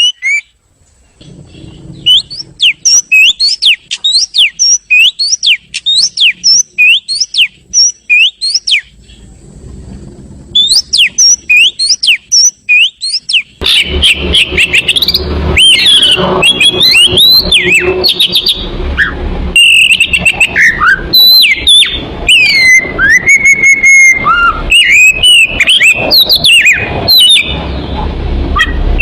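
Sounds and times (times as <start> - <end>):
bird song sharp whistled notes: 0.0 - 0.5, 2.0 - 9.2, 10.5 - 27.6.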